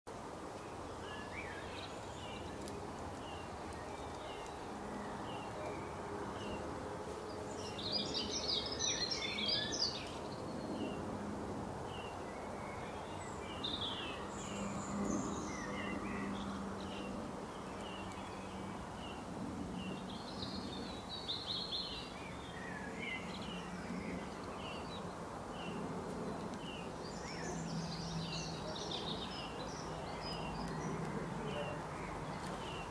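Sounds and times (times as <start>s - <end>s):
bird song phrases: 0.6s - 11.2s, 11.8s - 32.9s.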